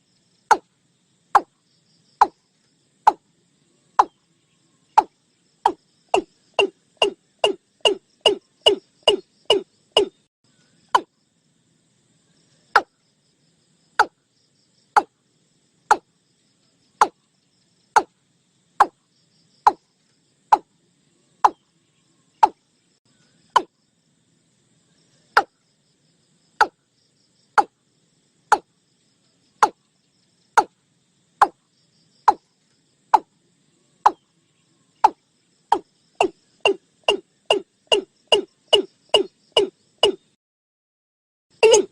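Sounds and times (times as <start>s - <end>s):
bird calling in low notes: 41.6s - 41.9s.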